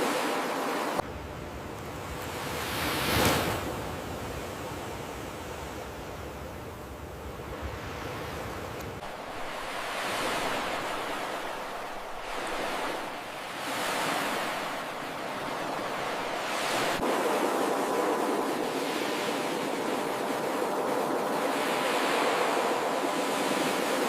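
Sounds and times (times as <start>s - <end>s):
ocean surf breaking: 0.0s - 1.0s, 7.5s - 24.0s.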